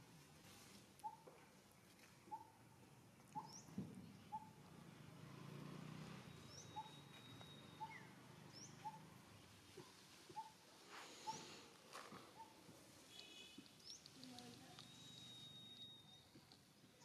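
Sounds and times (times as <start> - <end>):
faint bird calls: 6.4 - 9.2, 9.8 - 17.0.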